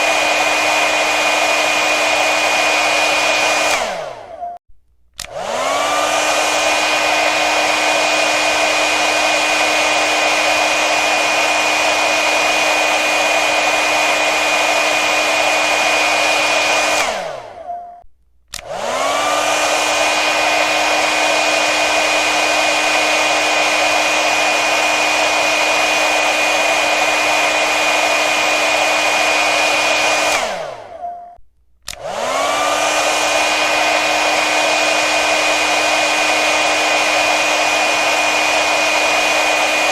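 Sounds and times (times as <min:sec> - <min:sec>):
hair dryer blowing: 0:00.0 - 0:04.6, 0:05.2 - 0:17.8, 0:18.5 - 0:31.1, 0:31.8 - 0:39.9.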